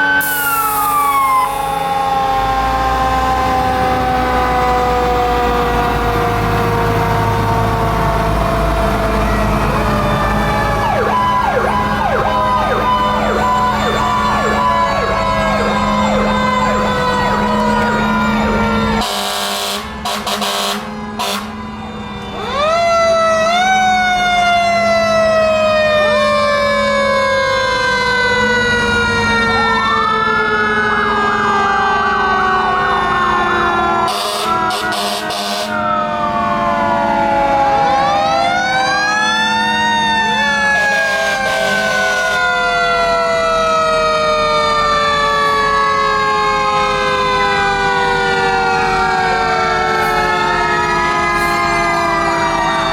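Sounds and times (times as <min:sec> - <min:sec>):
fire truck sirens wailing: 0:00.0 - 0:52.9
siren yelp: 0:00.0 - 0:52.9
loud horn blasts: 0:19.0 - 0:22.4, 0:34.0 - 0:35.8, 0:40.8 - 0:42.5.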